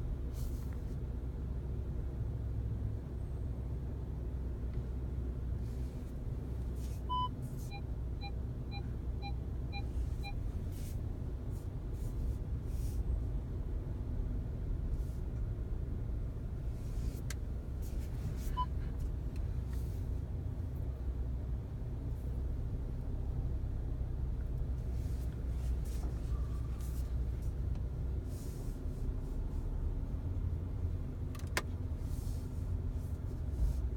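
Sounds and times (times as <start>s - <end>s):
car cabin rumble: 4.7s - 33.9s
short beeps: 7.1s - 10.4s
steering wheel click: 31.3s - 31.8s.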